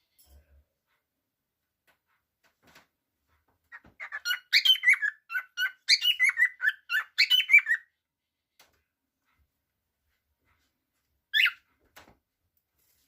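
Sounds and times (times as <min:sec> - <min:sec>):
cockatiel chirping and warbling: 0:03.7 - 0:07.9, 0:11.3 - 0:11.7.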